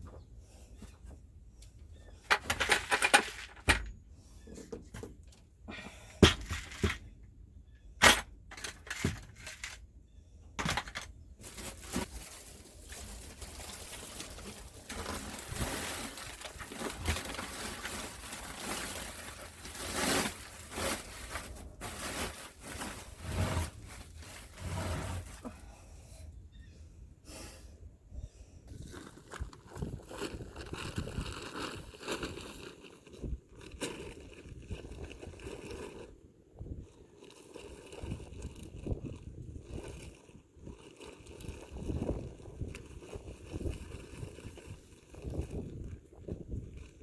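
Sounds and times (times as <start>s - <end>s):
buckets knocking and clattering: 2.3s - 3.9s, 6.2s - 7.2s, 10.6s - 12.2s, 13.0s - 24.6s.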